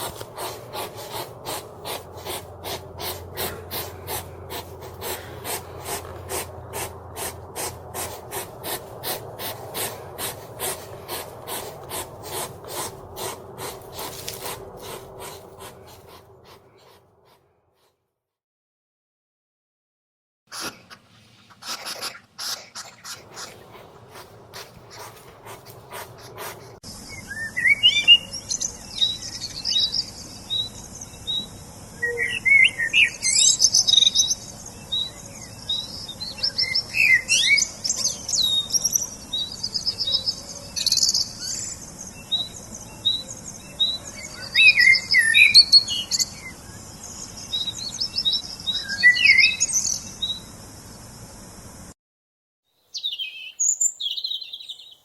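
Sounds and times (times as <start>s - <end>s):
songbirds chirping and calling: 0.0s - 17.9s, 21.2s - 51.2s, 52.8s - 55.0s
steady high hiss: 49.9s - 52.0s.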